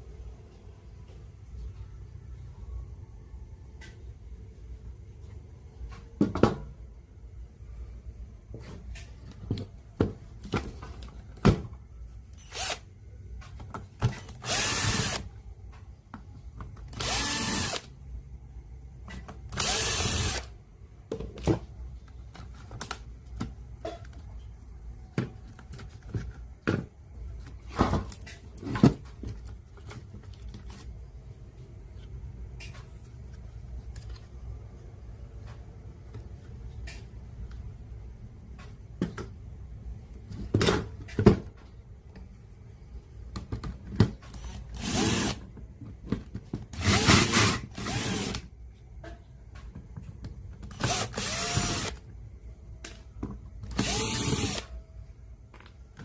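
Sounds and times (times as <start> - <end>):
handheld power tool motor: 12.4 - 12.9, 14.3 - 15.3, 16.9 - 17.9, 19.5 - 20.5, 44.7 - 45.4, 46.8 - 48.4, 50.7 - 52.0, 53.7 - 54.7.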